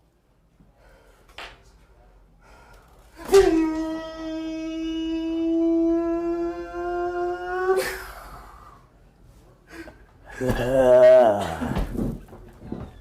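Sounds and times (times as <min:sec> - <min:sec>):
person holding a long note: 0:03.2 - 0:08.0.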